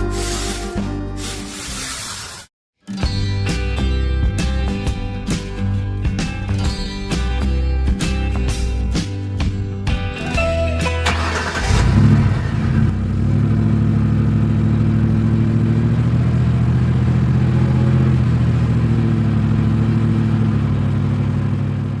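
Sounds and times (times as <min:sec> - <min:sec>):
engine running steadily: 0:11.0 - 0:22.0.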